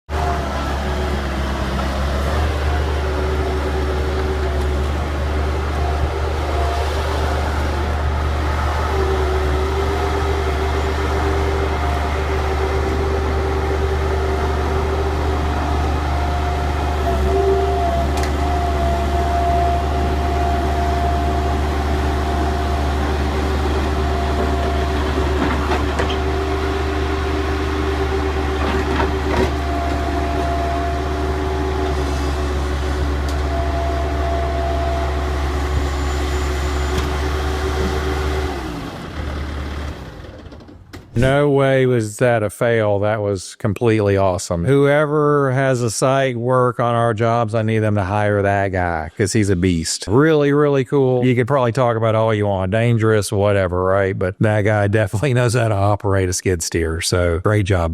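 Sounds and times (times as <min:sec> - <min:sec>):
loader engine droning: 0:00.1 - 0:43.2
steady whine: 0:41.2 - 0:42.0.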